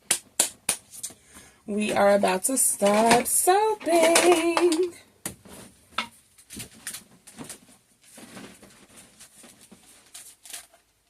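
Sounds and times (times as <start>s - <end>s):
containers and utensils clicking: 2.8s - 5.0s.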